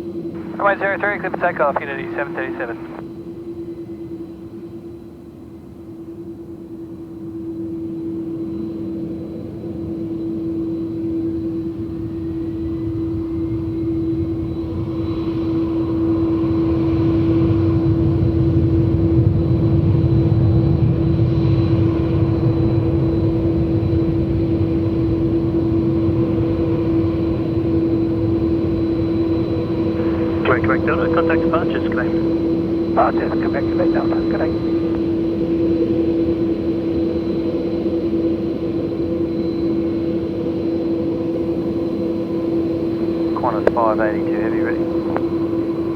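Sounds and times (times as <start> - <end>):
jet engines at takeoff: 0.0 - 45.9
steady hum: 0.3 - 3.0, 28.3 - 35.7, 42.8 - 45.9.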